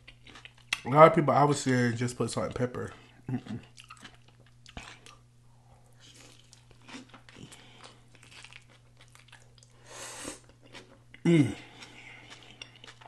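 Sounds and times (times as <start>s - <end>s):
biting and chewing burger: 0.0s - 0.9s, 2.8s - 5.3s, 5.9s - 9.8s, 10.4s - 13.0s
faint steady hum: 0.0s - 13.0s.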